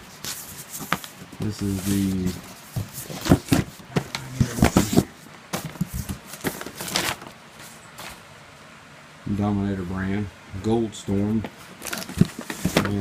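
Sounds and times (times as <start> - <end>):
cardboard and plastic packaging handled: 0.0 - 8.3, 11.2 - 13.0.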